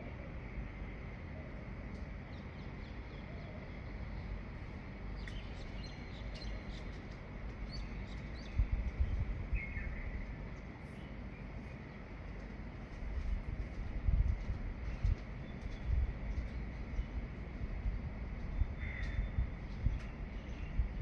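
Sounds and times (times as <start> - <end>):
birds chirping: 5.1 - 11.5.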